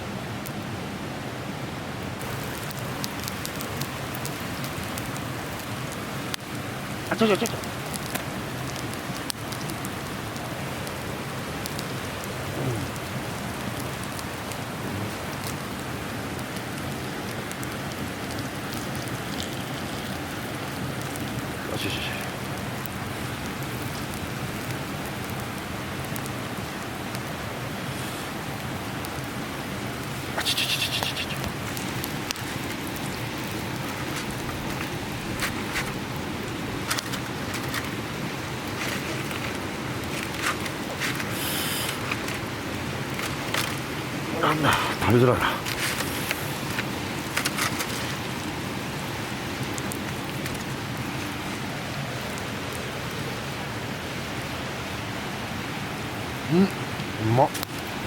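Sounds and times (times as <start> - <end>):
fire crackles and pops: 2.2 - 30.4, 31.1 - 44.2, 45.2 - 51.5
meat sizzling over a fire: 2.2 - 44.0
fire hiss: 27.8 - 28.7, 41.2 - 42.3.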